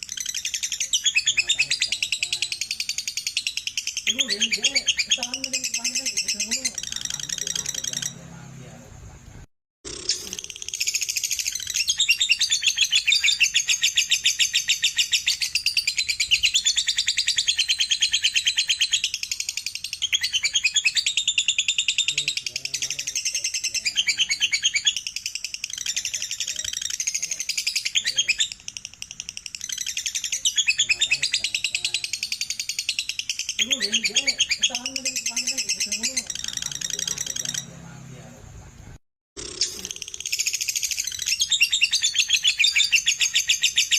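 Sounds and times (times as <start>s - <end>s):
lovebird chattering trill: 0.0s - 8.4s, 9.9s - 38.0s, 39.4s - 43.9s.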